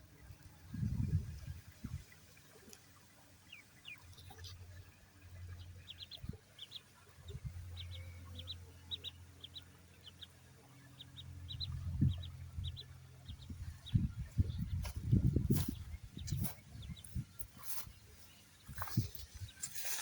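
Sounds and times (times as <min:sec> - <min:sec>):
low steady hum: 0:00.0 - 0:19.8
ducklings peeping: 0:03.4 - 0:20.0.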